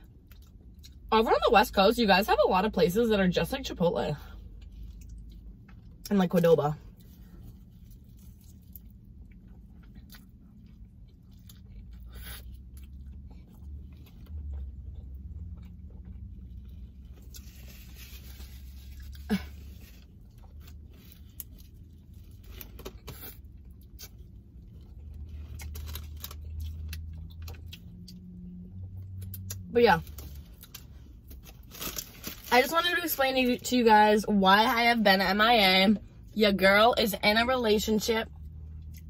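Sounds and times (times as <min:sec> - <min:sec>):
person chewing food: 0:00.0 - 0:01.1, 0:04.4 - 0:06.1, 0:06.9 - 0:29.6, 0:38.4 - 0:39.0
foil wrapper crinkling: 0:25.5 - 0:26.6, 0:30.0 - 0:32.6.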